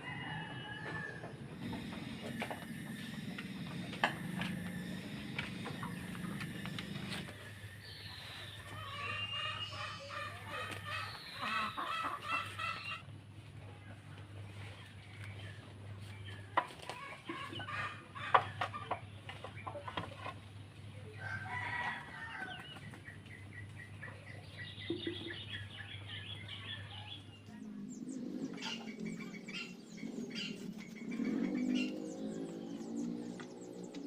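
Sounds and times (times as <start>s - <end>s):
rooster crowing: 0.0s - 2.3s, 21.2s - 22.6s
chickens clucking: 0.0s - 34.0s.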